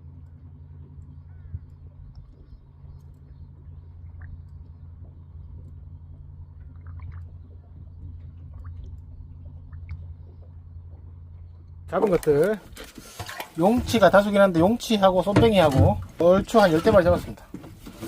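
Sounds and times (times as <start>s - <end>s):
low machine hum: 0.0s - 18.0s
faint clicks: 0.2s - 12.5s.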